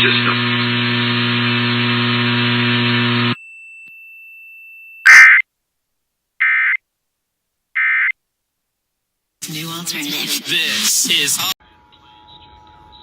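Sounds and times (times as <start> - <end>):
electrical buzz: 0.0 - 3.4
alert data tones screech: 5.1 - 5.4, 6.4 - 6.8, 7.8 - 8.1.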